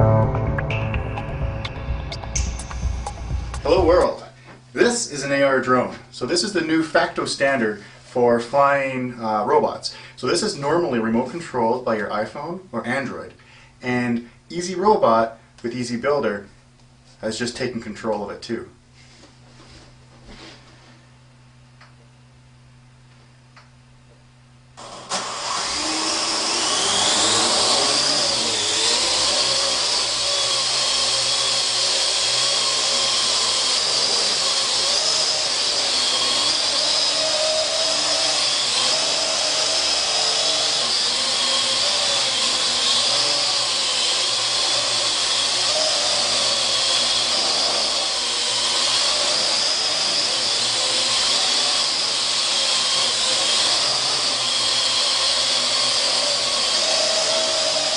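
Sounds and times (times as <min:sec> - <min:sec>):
drone rotors buzzing whine: 0:24.8 - 0:57.9.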